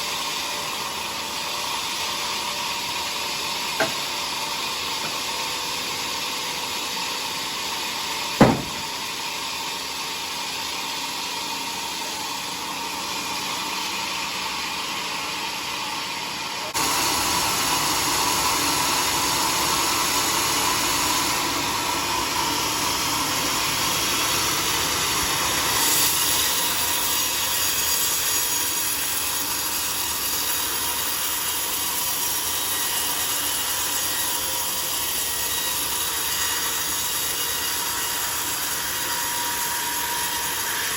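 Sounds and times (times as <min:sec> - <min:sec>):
sawmill saw cutting log: 0:00.0 - 0:14.4, 0:18.0 - 0:40.9
sharp knock: 0:08.4 - 0:09.0.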